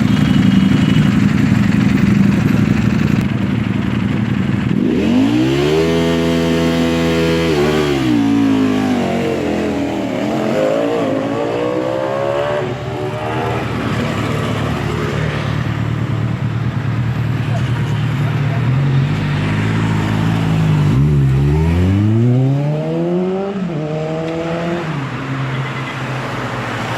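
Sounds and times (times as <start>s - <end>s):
motorcycle engine revving: 0.0s - 17.6s, 18.4s - 24.9s.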